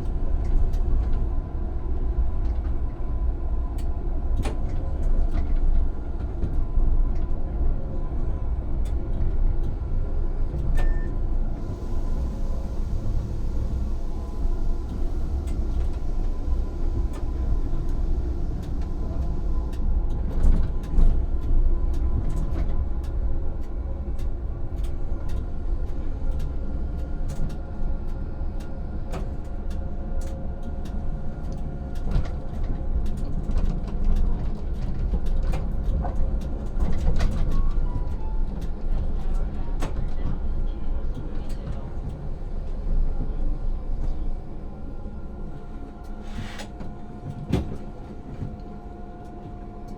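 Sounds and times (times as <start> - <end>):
tram rumbling: 0.0 - 49.9.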